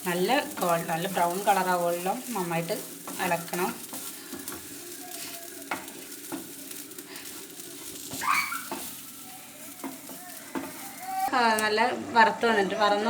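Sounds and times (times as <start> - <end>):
spoon scraping a pan: 0.0 - 11.3
food sizzling in a frying pan: 0.0 - 13.0.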